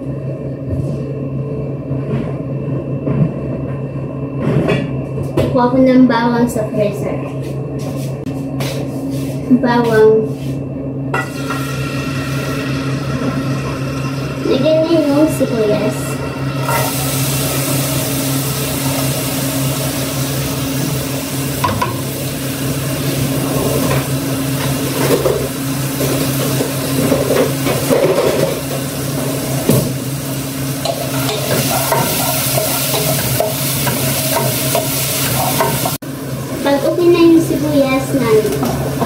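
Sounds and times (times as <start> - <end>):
steady low hum: 0.0 - 39.0
onion sizzling in hot oil: 11.2 - 39.0.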